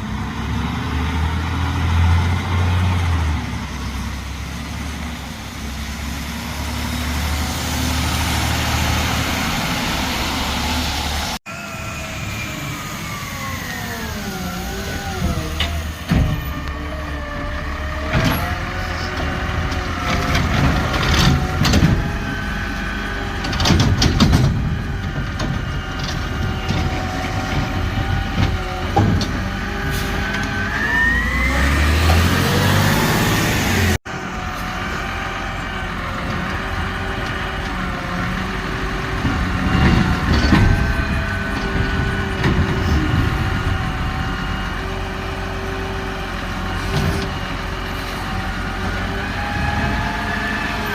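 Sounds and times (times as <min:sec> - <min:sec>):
diesel engine running: 0:00.0 - 0:50.9
metallic clunks and bangs: 0:15.2 - 0:16.6, 0:23.4 - 0:29.5, 0:39.2 - 0:43.6
engine revving with rising whine: 0:29.4 - 0:36.0, 0:48.3 - 0:50.9.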